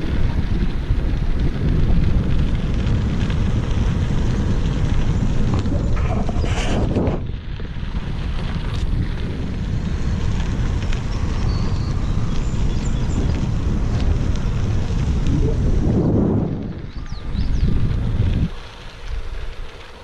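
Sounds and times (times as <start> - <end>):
wind buffeting microphone: 0.0 - 20.0
hissing rush: 3.3 - 7.4.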